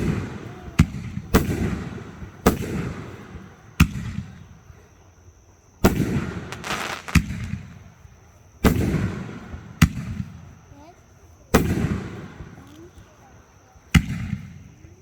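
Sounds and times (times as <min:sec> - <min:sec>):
fireworks booming: 0:00.0 - 0:04.7, 0:05.8 - 0:10.6, 0:11.5 - 0:13.1, 0:13.9 - 0:14.8
small firework pops: 0:00.0 - 0:04.7, 0:05.8 - 0:08.0, 0:08.6 - 0:10.5, 0:11.5 - 0:13.3, 0:13.9 - 0:15.0.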